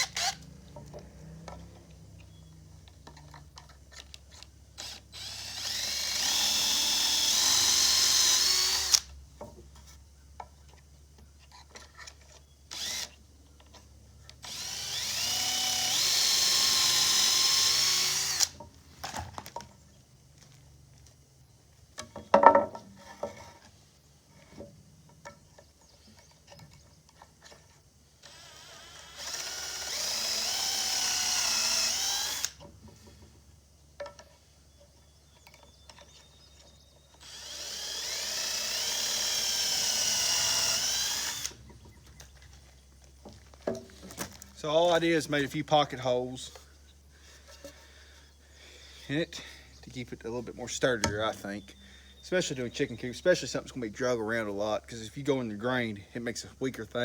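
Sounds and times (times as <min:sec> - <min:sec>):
power drill whining: 0:00.0 - 0:01.7, 0:04.8 - 0:09.1, 0:12.7 - 0:13.2, 0:14.4 - 0:19.5, 0:28.2 - 0:32.6, 0:37.1 - 0:41.7
handling clicks and knocks: 0:22.0 - 0:23.3.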